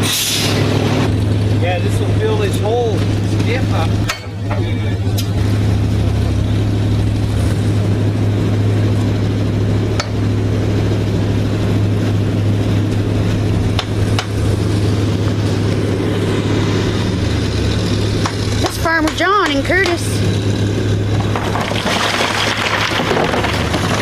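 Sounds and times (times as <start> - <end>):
truck engine humming: 0.0 - 24.0.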